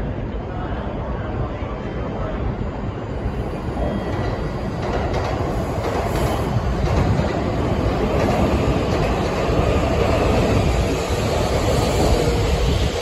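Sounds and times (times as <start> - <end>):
train wheels rumbling: 3.3 - 13.0.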